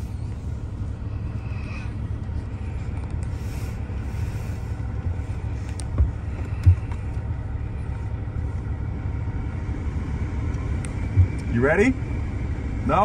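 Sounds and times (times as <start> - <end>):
car engine idling inside cabin: 0.0 - 13.0
low thumps: 5.5 - 7.5, 10.8 - 11.7.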